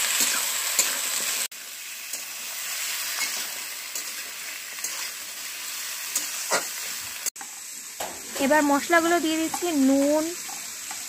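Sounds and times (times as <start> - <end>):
vegetables sizzling in oil: 0.0 - 11.0
metal spatula scraping wok: 2.0 - 5.2.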